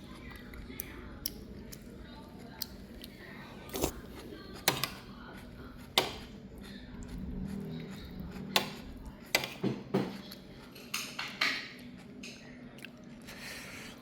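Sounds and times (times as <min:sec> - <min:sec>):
utensils clinking against dishes: 0:08.6 - 0:12.4.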